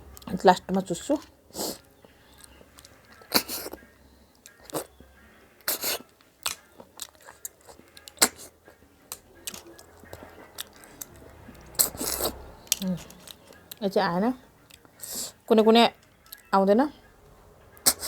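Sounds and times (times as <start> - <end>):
chewing: 0.1 - 16.5, 17.2 - 18.0
person slurping snails: 1.5 - 1.9, 2.8 - 3.8, 4.5 - 4.9, 5.6 - 8.7, 10.6 - 13.5.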